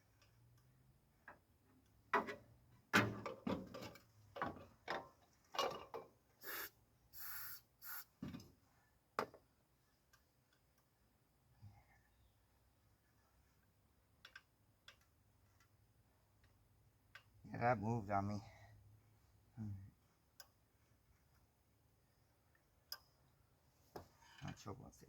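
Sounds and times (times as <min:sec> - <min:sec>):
aerosol spray hisses: 0:06.4 - 0:08.1.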